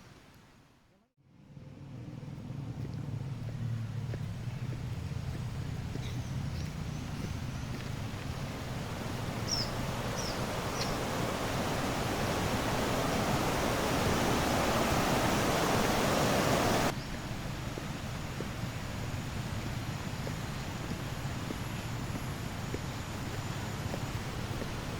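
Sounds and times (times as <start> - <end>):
rushing river water: 5.4 - 24.9
bird chirps: 5.8 - 8.0, 9.4 - 11.1.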